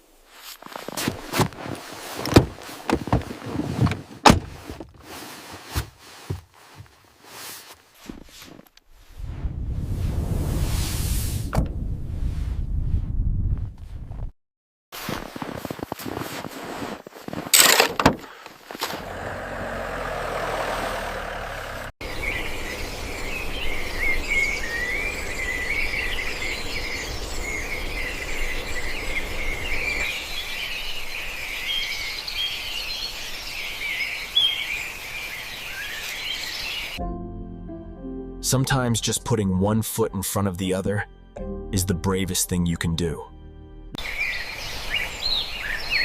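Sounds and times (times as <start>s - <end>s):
birds chirping: 18.3s - 37.0s, 44.0s - 46.0s
low hum: 18.8s - 30.0s.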